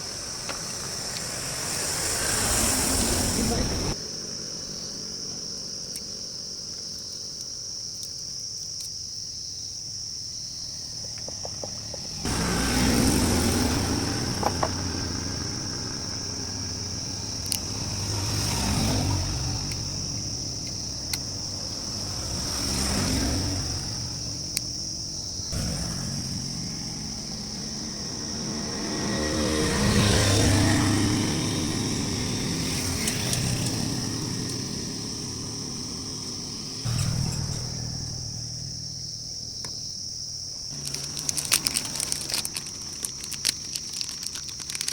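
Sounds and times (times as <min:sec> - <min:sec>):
motorcycle engine revving: 0:00.0 - 0:04.0, 0:11.0 - 0:40.1, 0:40.7 - 0:43.4.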